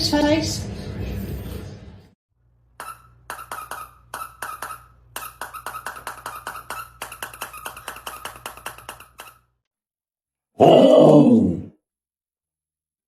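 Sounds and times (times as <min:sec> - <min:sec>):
rapid squeaky clicks: 0:02.8 - 0:09.5
loud voice-like sound: 0:10.6 - 0:11.8.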